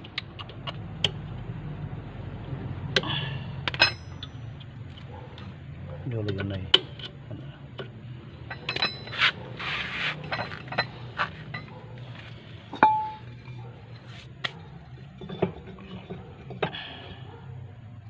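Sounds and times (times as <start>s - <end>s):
metal tools clinking and knocking: 3.7s - 4.4s, 8.4s - 14.1s, 14.9s - 16.8s
metal scrape: 8.9s - 14.4s.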